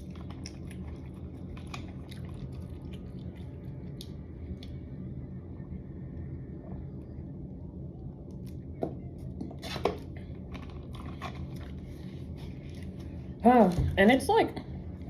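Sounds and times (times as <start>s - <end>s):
chewing: 0.0s - 4.8s
low room hum: 0.0s - 15.0s.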